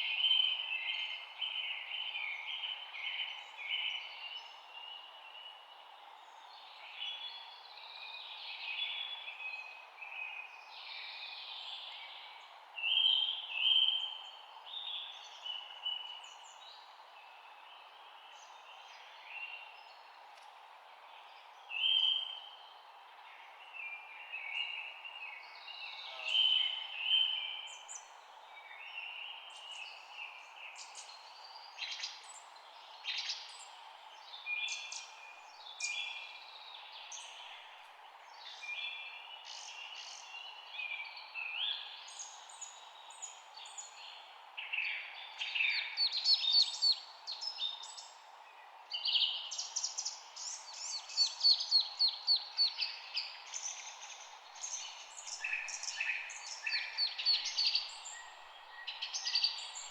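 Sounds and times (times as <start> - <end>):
steady background hiss: 10.2 - 59.9
songbirds chirping and singing: 23.4 - 28.2, 29.0 - 59.9.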